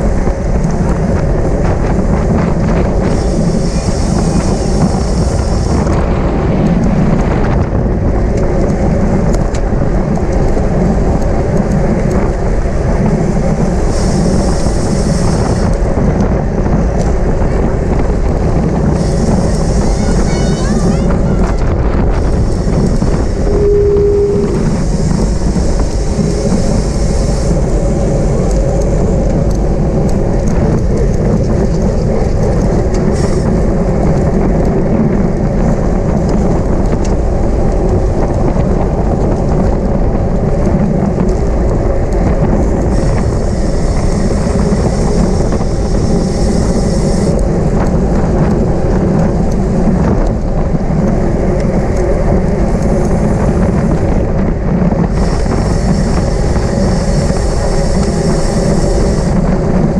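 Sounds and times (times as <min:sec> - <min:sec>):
road and bike noise: 0:00.0 - 0:59.9
wind rushing on microphone: 0:00.0 - 0:59.9.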